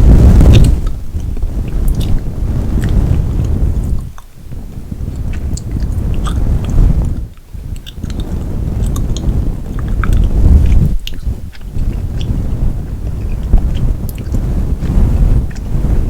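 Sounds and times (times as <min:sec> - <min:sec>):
loud low rumble: 0:00.0 - 0:04.2
gum chewing: 0:00.5 - 0:02.2, 0:02.8 - 0:04.3, 0:05.1 - 0:14.4.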